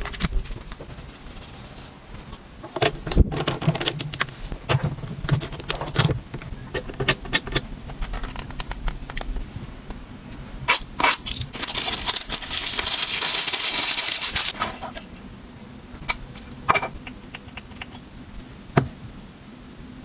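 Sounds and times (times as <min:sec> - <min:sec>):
high hissing rustle: 0:09.3 - 0:15.4.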